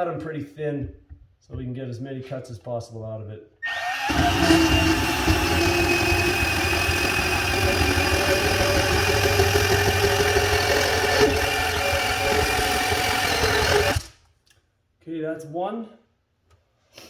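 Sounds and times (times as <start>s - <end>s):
bandsaw cutting pipe: 3.7s - 14.2s.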